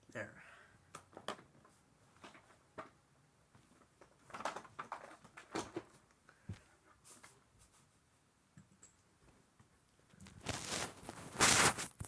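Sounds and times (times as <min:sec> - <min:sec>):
objects being handled: 0:10.2 - 0:12.0.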